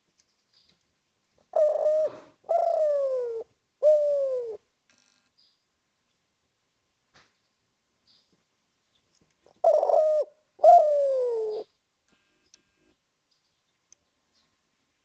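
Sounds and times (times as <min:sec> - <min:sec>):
dove cooing: 0:01.5 - 0:04.6, 0:09.5 - 0:11.7.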